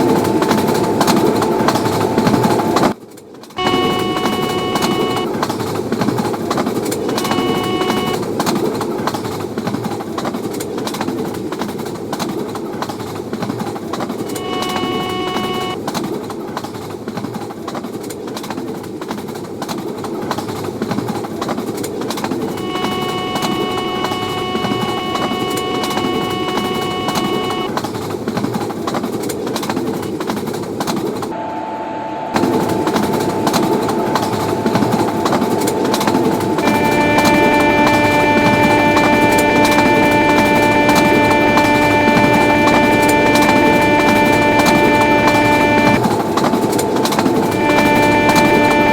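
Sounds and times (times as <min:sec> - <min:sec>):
train wheels rumbling on rails: 0:00.0 - 0:48.9
train horn blasts: 0:03.6 - 0:05.4, 0:07.0 - 0:08.4, 0:14.2 - 0:15.8, 0:22.5 - 0:27.8, 0:31.3 - 0:48.9.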